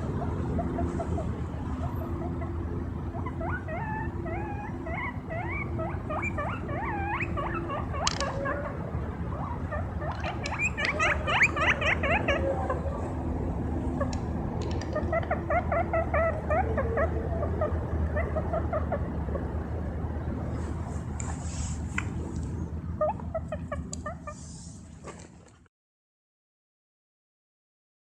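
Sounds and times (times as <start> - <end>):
steady low hum: 0.0 - 25.5
guinea pig whistling: 0.2 - 12.6, 15.0 - 19.0.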